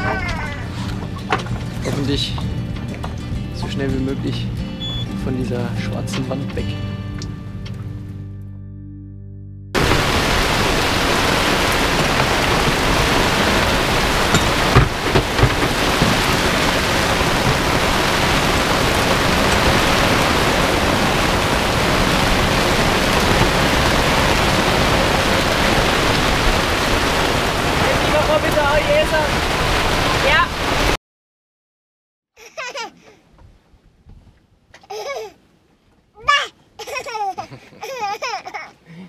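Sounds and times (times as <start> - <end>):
heavy rain and wind: 9.8 - 31.0
thumps: 14.2 - 16.5.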